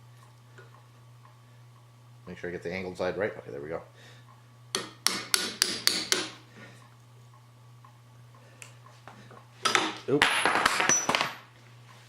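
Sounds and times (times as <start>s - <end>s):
low steady hum: 0.0s - 12.0s
hammer striking chisel: 4.7s - 6.4s.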